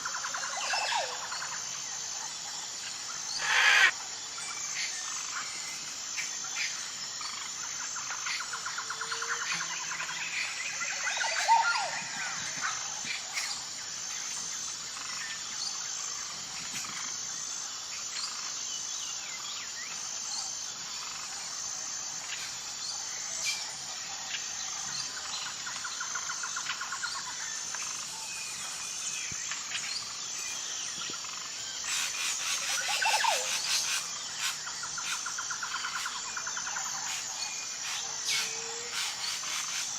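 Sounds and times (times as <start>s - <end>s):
high-pitched insect drone: 0.0s - 39.9s
birds chirping and trilling: 3.2s - 3.9s
swooping bird calls: 3.4s - 3.9s.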